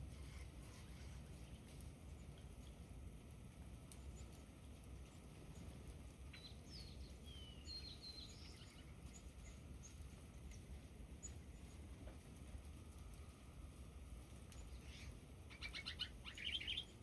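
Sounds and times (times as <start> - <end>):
low outdoor rumble: 0.0 - 17.0
faint songbird chirps: 5.1 - 11.9, 14.5 - 17.0.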